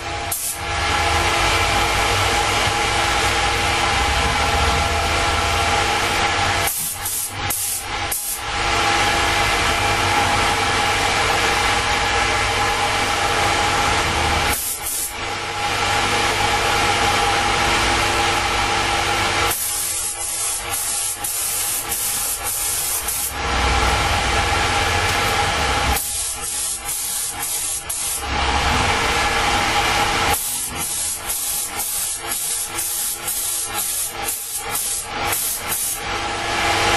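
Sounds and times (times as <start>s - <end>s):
steady machine hum: 0.0s - 36.9s
spray gun hissing: 0.2s - 0.6s, 6.6s - 8.4s, 14.5s - 15.2s, 19.5s - 23.4s, 25.8s - 28.4s, 30.2s - 36.0s.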